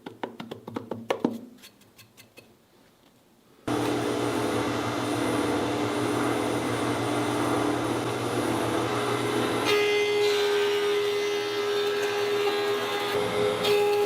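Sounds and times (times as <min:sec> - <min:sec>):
power tool running: 0:03.7 - 0:14.0.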